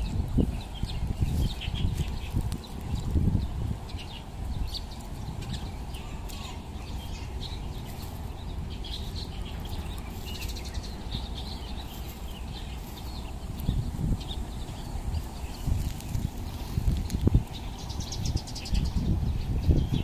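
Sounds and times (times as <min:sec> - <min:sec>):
small birds chirping: 0:00.0 - 0:20.0
steady low rumble: 0:00.0 - 0:20.0.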